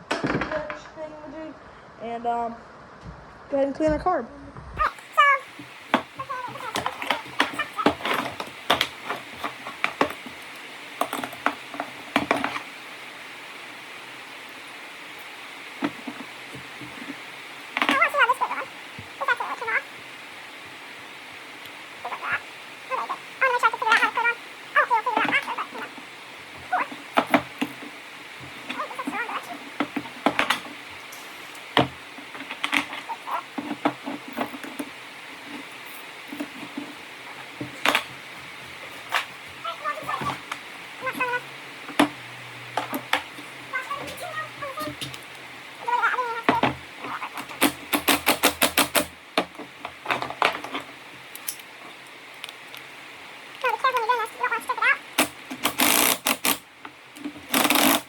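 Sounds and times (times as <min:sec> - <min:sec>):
steady low hiss: 0:00.0 - 0:58.0
small parts clicking and knocking: 0:04.8 - 0:12.8, 0:21.6 - 0:40.6, 0:41.2 - 0:52.9, 0:55.2 - 0:58.0
small parts and tools clinking: 0:55.2 - 0:56.6, 0:57.2 - 0:58.0.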